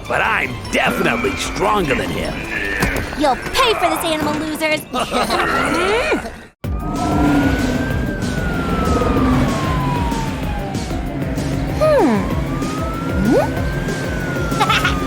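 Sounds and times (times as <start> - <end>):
siren wailing: 6.7 - 15.0
rhythmic music: 11.5 - 14.7
swooping sound effects: 11.8 - 13.7.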